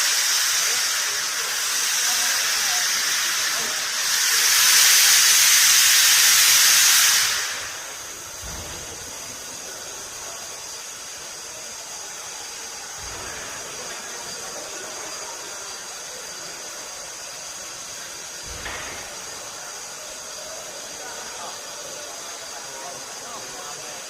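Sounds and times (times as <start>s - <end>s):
steam hissing from locomotive: 0.0s - 24.0s.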